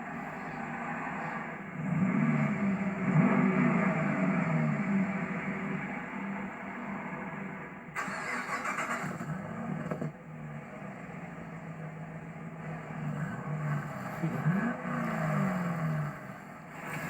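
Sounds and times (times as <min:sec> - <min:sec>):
rush of noise: 0:00.0 - 0:09.8
car engine idling: 0:00.0 - 0:17.0.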